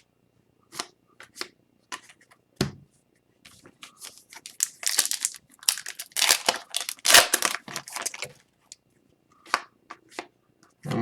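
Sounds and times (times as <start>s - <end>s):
foil wrapper crinkling: 4.0s - 8.4s.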